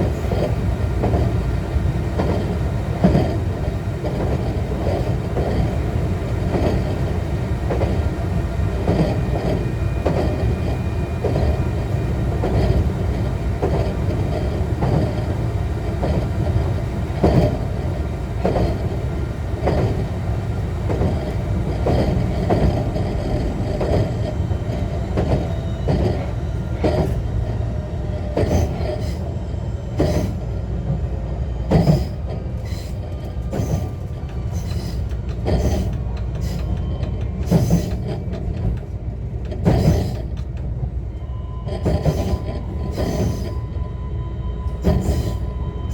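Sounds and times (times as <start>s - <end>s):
train wheels rumbling on rails: 0.0s - 45.9s
wheels clicking over rail joints: 31.7s - 41.0s.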